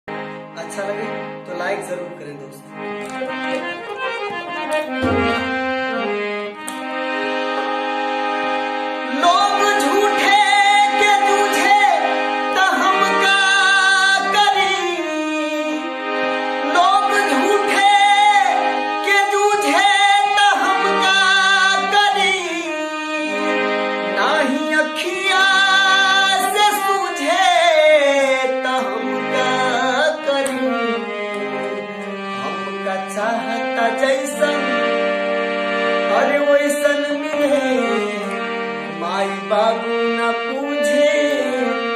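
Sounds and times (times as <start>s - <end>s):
harmonium chords: 0.0s - 41.9s
tabla: 4.9s - 5.8s
person singing: 8.9s - 41.9s.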